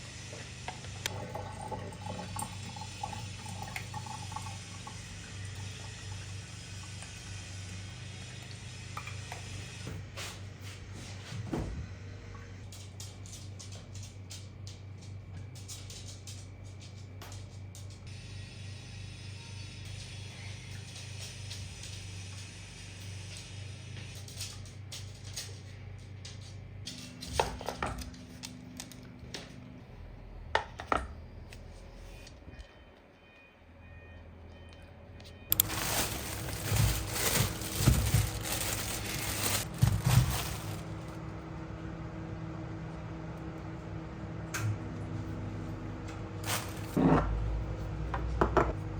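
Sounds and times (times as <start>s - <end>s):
water running: 0.7s - 9.2s
low steady hum: 26.9s - 48.9s.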